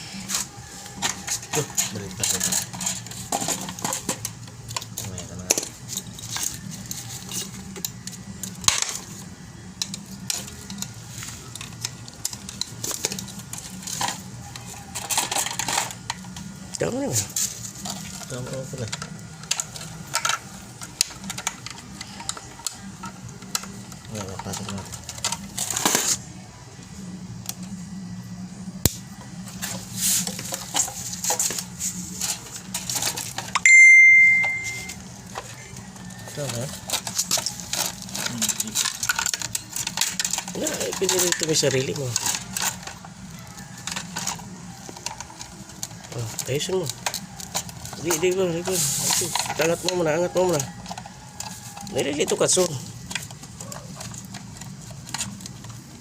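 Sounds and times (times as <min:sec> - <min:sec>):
low steady hum: 0:00.0 - 0:41.0
metal and plastic parts clattering: 0:00.3 - 0:26.2, 0:29.6 - 0:56.0
high-pitched bleep tone: 0:33.6 - 0:35.0.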